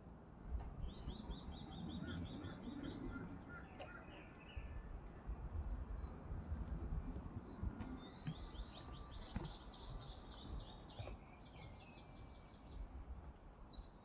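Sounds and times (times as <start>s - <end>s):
birds chirping: 0.8s - 4.9s.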